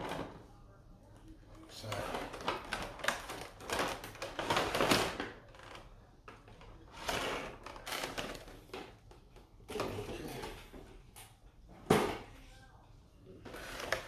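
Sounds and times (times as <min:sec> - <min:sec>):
cardboard and plastic rustling: 0:01.5 - 0:11.0, 0:13.4 - 0:14.0.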